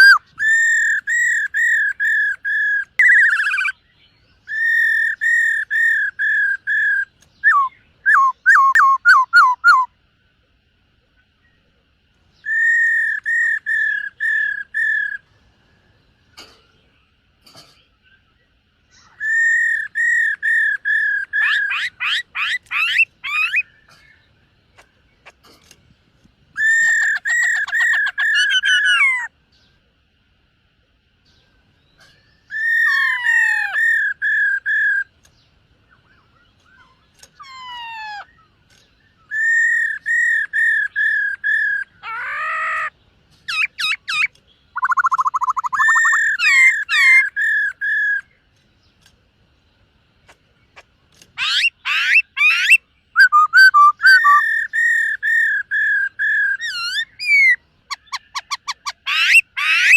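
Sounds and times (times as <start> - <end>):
bird singing whistled phrases: 0.0 - 9.9, 12.4 - 15.2, 18.9 - 24.0, 32.3 - 35.1, 39.1 - 42.9, 43.5 - 48.4, 51.4 - 59.9.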